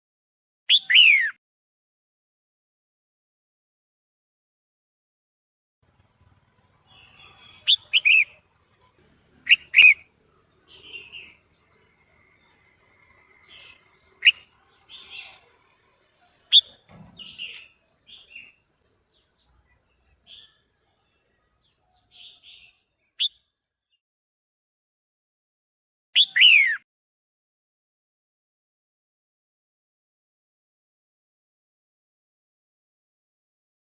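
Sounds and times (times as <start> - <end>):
bird calling: 6.7 - 19.3.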